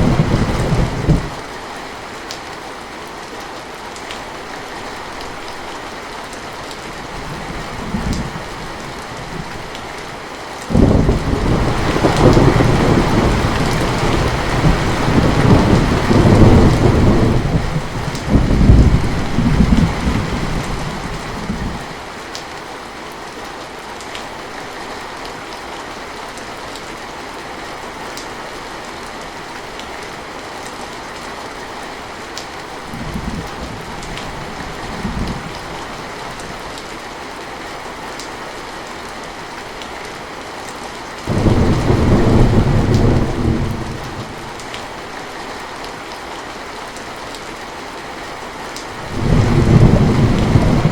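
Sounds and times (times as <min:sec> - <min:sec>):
distant thunder rumbles: 0:00.0 - 0:01.4, 0:10.7 - 0:21.8, 0:41.3 - 0:44.7, 0:49.0 - 0:50.9
thunder rumbling: 0:00.0 - 0:01.4, 0:10.7 - 0:21.8, 0:41.3 - 0:44.7, 0:49.0 - 0:50.9
heavy rain falling: 0:00.0 - 0:50.9.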